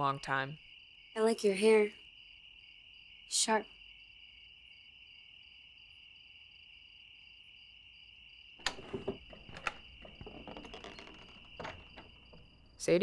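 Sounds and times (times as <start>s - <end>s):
crickets chirping: 0.0s - 13.0s
knocks clicks and rustling: 8.6s - 12.8s.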